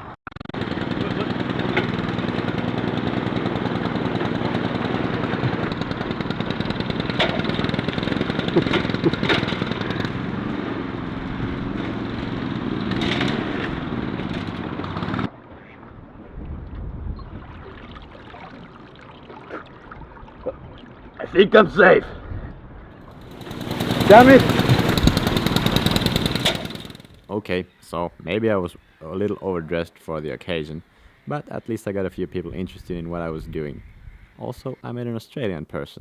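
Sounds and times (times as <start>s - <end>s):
engine running: 0.6s - 15.3s, 23.2s - 27.2s.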